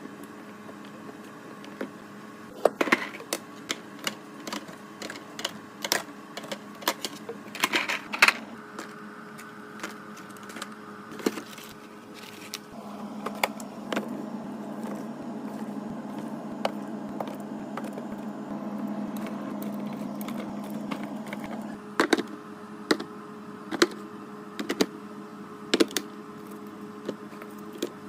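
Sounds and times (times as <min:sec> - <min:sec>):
steady hum: 0:00.0 - 0:28.0
containers clicking and knocking on shelves: 0:02.6 - 0:12.6, 0:19.2 - 0:23.1, 0:23.7 - 0:24.0, 0:24.6 - 0:24.9, 0:25.7 - 0:26.1.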